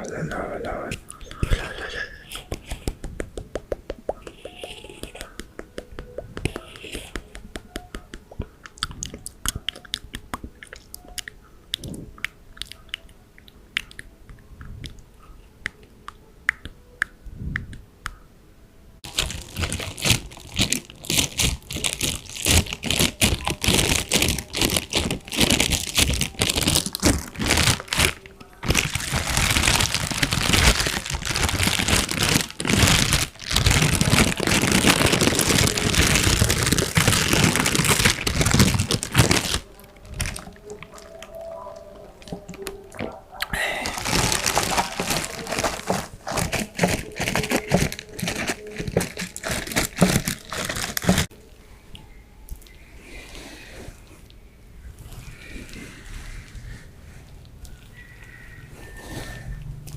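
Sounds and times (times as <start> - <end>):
crunching and crinkling: 4.1 - 14.4, 19.0 - 51.4.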